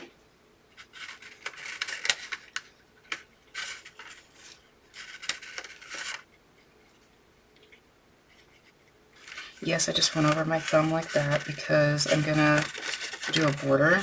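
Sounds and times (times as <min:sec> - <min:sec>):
frosting utensil scraping: 0:09.2 - 0:14.0.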